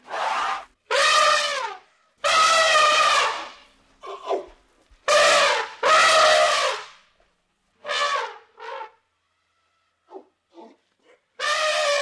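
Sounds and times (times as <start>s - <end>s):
baby elephants trumpeting: 0.1s - 3.6s, 5.1s - 6.9s, 11.4s - 12.0s.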